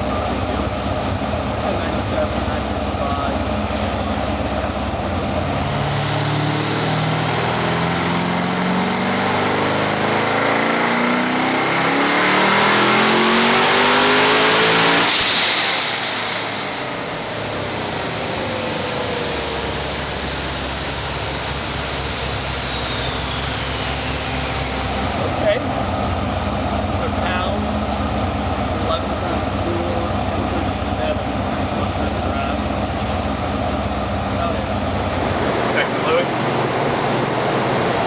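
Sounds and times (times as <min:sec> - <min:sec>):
car engine revving at full throttle: 0:00.0 - 0:38.0
turbo whistle: 0:15.0 - 0:25.2.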